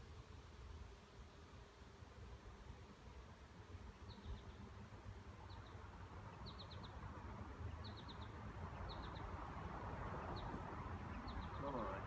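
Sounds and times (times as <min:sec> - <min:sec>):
songbird chirping: 0:03.8 - 0:04.8, 0:05.4 - 0:12.0.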